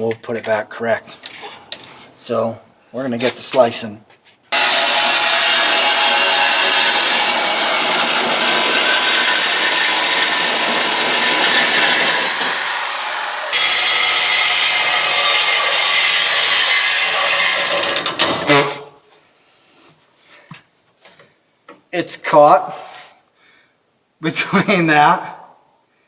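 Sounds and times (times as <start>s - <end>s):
reciprocating saw cutting metal pipe: 4.5s - 18.8s.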